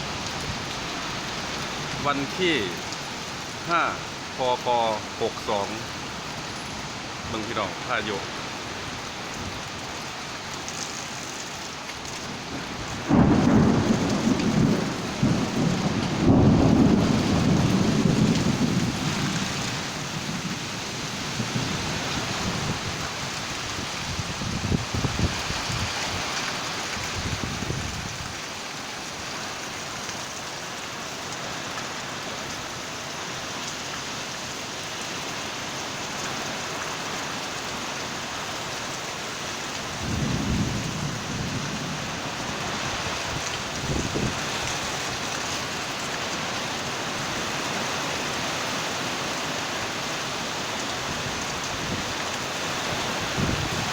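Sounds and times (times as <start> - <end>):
heavy rain: 0.0 - 53.9
thunder rumbling: 12.3 - 23.1, 39.9 - 45.0.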